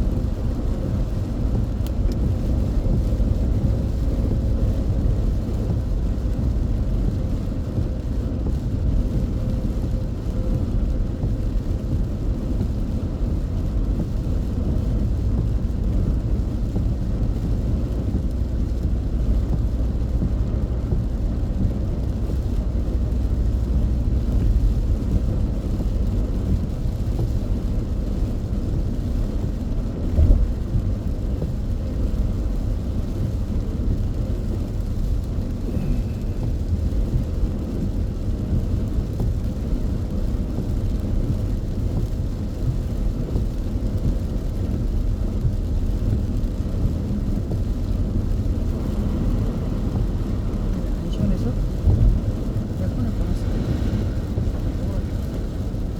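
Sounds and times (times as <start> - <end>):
car driving on wet road: 0.0 - 55.9.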